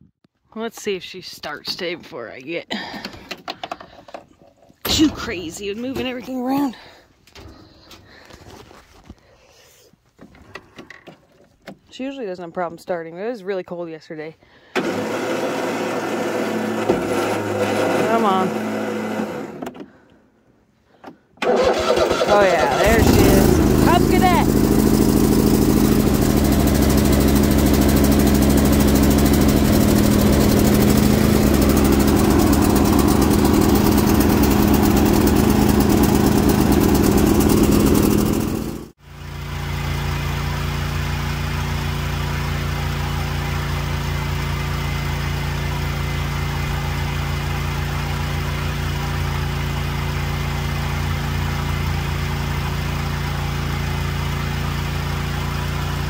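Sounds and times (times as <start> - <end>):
lawn tractor engine running: 14.7 - 19.9, 21.4 - 56.0
engine idling: 21.4 - 56.0.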